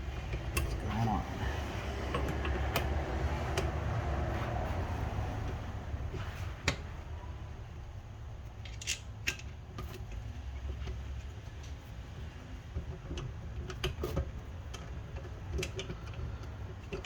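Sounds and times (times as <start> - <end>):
metal parts clicking and tapping: 8.6 - 10.2.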